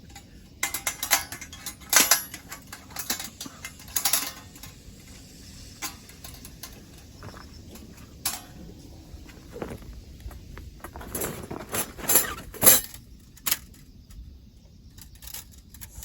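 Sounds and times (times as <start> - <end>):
low steady background noise: 0.0 - 16.0
metal gear clinking: 0.6 - 4.7.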